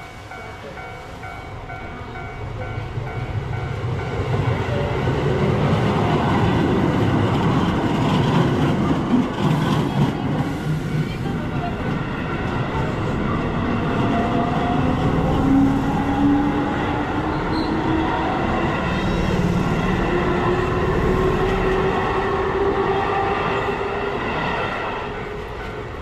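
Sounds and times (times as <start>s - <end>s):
train rumbling along track: 0.0s - 26.0s.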